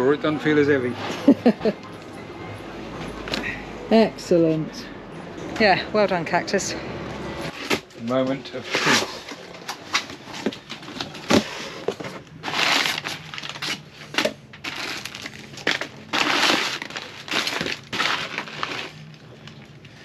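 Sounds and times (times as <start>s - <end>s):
packing material rustling: 7.5s - 20.0s
cardboard box tearing: 12.4s - 18.9s.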